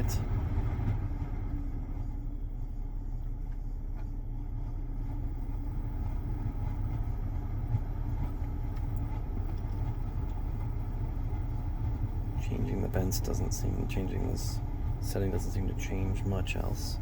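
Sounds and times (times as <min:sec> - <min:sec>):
blower fan rumbling: 0:00.0 - 0:17.0.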